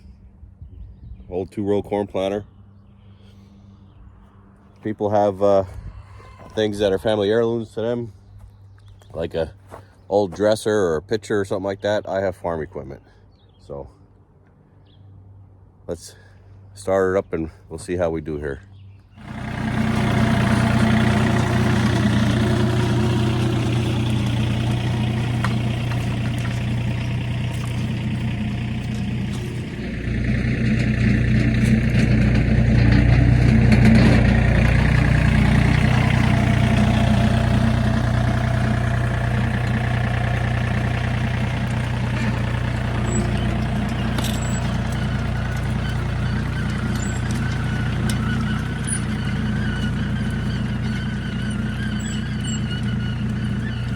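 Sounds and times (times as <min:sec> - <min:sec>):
tractor engine running: 0:19.2 - 0:53.9.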